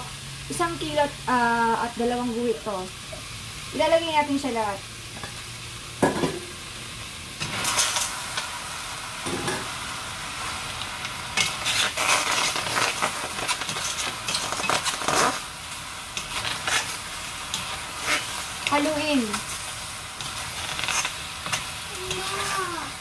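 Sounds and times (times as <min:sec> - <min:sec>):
chicken sizzling in a pot: 0:00.0 - 0:23.0
wooden spoons scraping a pot: 0:11.4 - 0:15.4, 0:16.2 - 0:22.5.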